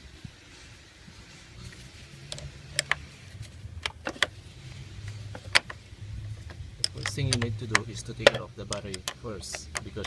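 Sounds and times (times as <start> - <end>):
hand tools clinking on metal: 6.8 - 10.0.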